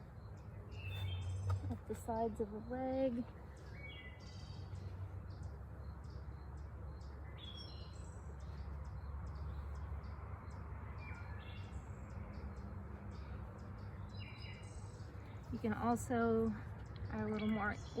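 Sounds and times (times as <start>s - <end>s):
steady low hum: 0.0s - 11.0s
birds chirping: 0.0s - 18.0s.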